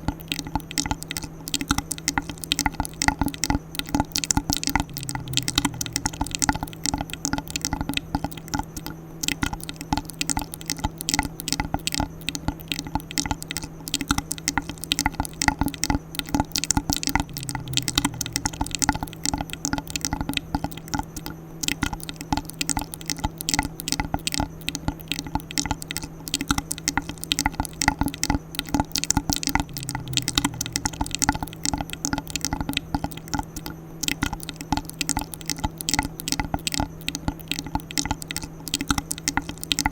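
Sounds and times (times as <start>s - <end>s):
faint steady hum: 0.0s - 39.9s
wet mouth clicks and smacks: 0.0s - 39.9s.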